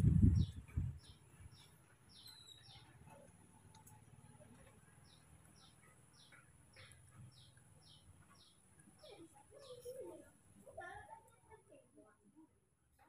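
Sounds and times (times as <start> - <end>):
bird faintly chirping: 0.2 - 10.2.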